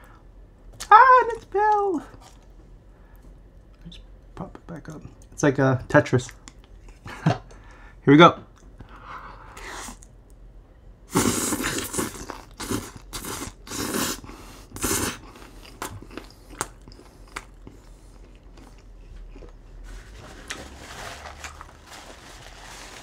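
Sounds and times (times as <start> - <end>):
person chewing crunchy food: 11.2 - 20.8.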